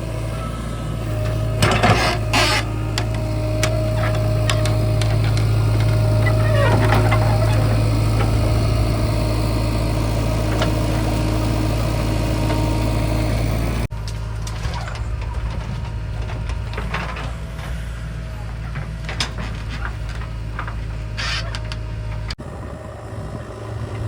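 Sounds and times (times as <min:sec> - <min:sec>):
diesel engine droning: 0:00.0 - 0:24.0
knocks and rattles: 0:01.2 - 0:08.9, 0:14.0 - 0:17.8, 0:18.5 - 0:22.4.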